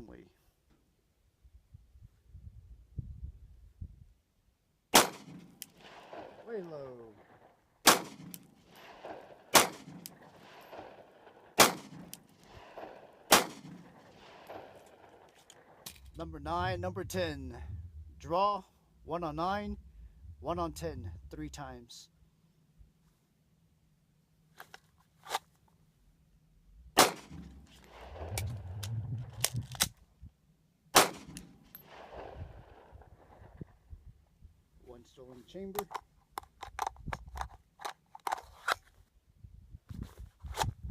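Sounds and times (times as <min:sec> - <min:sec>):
pistol shots: 0:04.9 - 0:16.1, 0:27.0 - 0:29.9, 0:30.9 - 0:33.6
sharp clicks and cracks: 0:05.0 - 0:16.3, 0:27.0 - 0:30.0, 0:31.0 - 0:32.8, 0:35.7 - 0:38.8.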